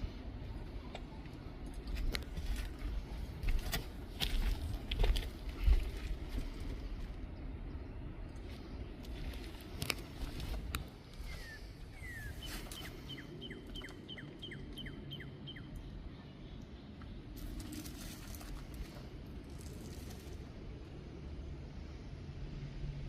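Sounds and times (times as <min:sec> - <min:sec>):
wind rumble on microphone: 0:00.0 - 0:16.1
songbird chirping: 0:07.2 - 0:18.7.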